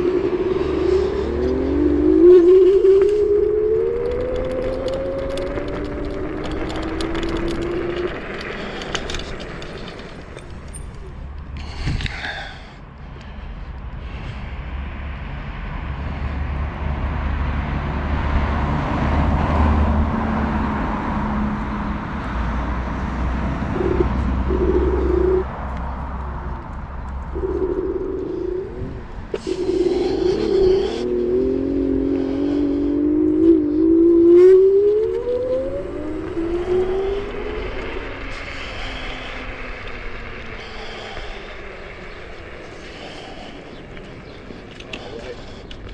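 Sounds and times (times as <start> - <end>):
electric motors whining: 0.0 - 11.3, 27.3 - 45.9
electric scooter rumble: 0.0 - 45.9
wind buffeting microphone: 0.0 - 45.9.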